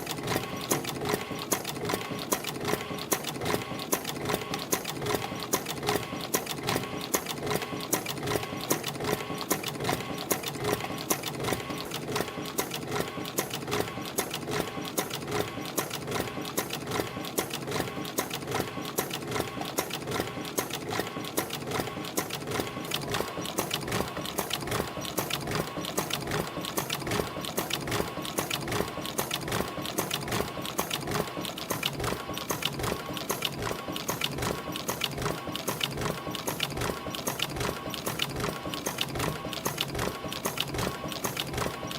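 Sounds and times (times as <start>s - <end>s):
spring making machine clattering: 10.3s - 41.9s.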